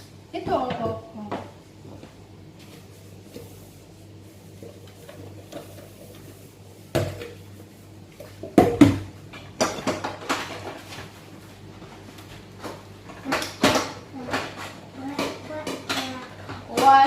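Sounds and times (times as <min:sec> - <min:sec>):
dishes clattering in a sink: 0:08.2 - 0:11.1.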